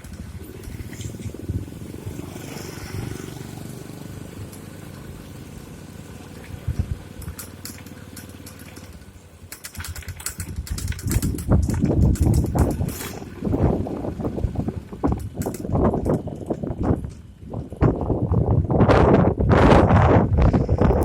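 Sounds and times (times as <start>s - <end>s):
wind buffeting microphone: 0.0s - 4.5s, 6.3s - 7.4s, 9.8s - 21.0s
vehicle engine running: 0.0s - 21.0s.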